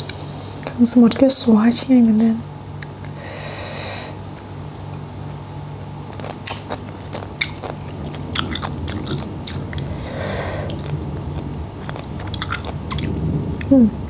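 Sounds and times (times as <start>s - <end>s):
crunchy wet chewing: 4.9s - 13.7s.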